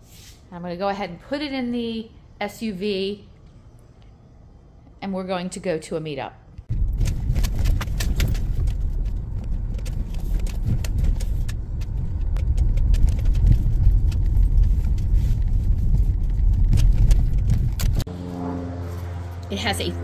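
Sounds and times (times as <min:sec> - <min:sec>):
road rumble in car cabin: 0:06.6 - 0:18.1.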